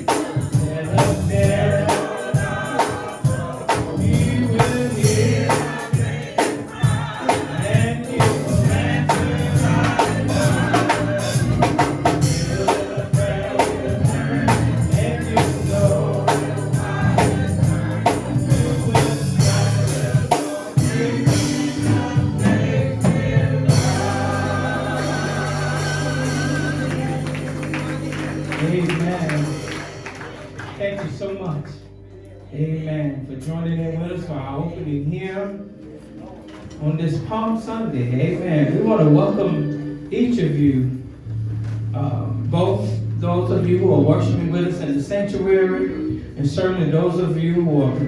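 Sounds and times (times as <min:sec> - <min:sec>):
tambourine: 0:00.0 - 0:30.5
steady beat: 0:00.0 - 0:30.8
choir singing a hymn: 0:00.0 - 0:30.9
held chord: 0:00.0 - 0:31.6.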